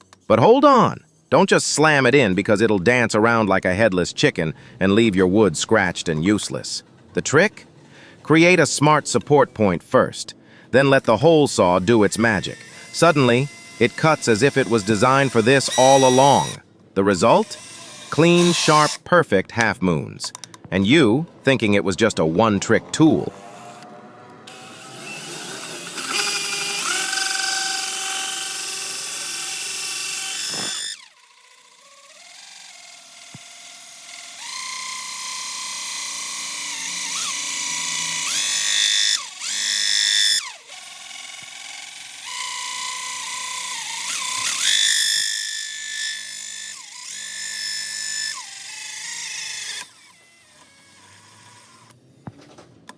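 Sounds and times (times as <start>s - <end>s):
drill hole saw cutting wood: 10.9s - 19.0s, 23.1s - 52.0s.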